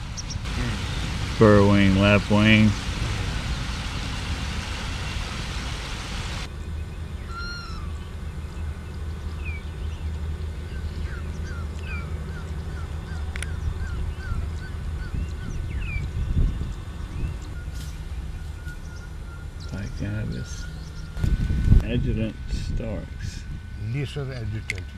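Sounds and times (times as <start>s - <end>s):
birds chirping and whistling: 0.0s - 1.3s, 3.1s - 21.8s
steady low rumble: 0.0s - 24.9s
hiss: 0.5s - 6.5s.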